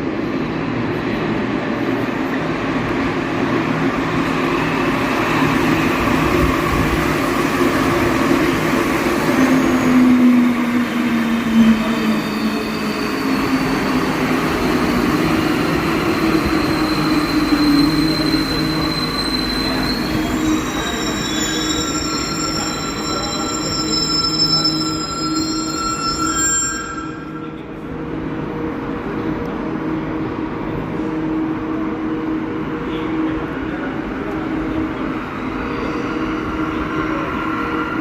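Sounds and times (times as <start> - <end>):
metro train motor hum: 0.0 - 38.0
train wheel squeal: 6.2 - 27.8.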